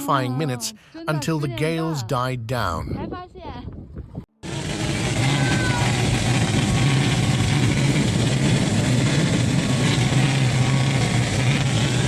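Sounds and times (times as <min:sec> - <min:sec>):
low hum: 0:04.4 - 0:12.0.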